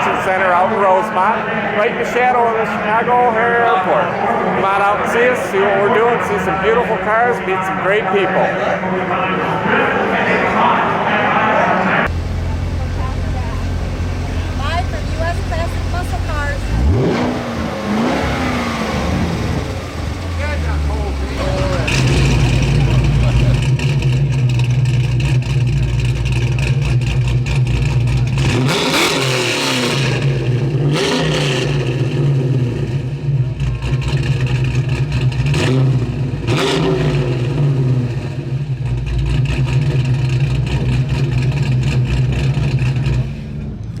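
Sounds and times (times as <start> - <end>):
car engine idling and revving: 11.9 - 44.0.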